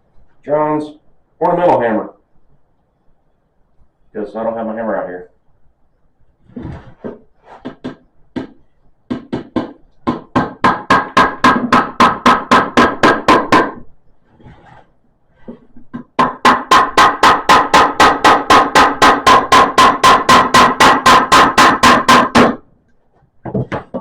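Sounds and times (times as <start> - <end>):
hammer tapping nails into wood: 7.6 - 13.8, 15.9 - 22.6.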